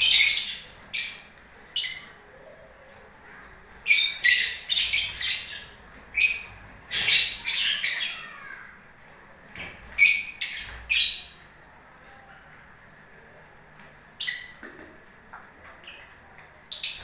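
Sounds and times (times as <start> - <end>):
lovebirds squawking: 0.0 - 2.2, 3.7 - 8.8.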